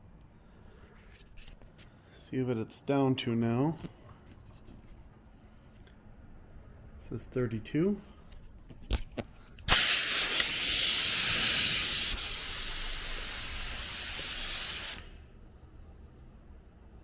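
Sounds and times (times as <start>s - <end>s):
air hissing out of tires: 9.6s - 15.3s.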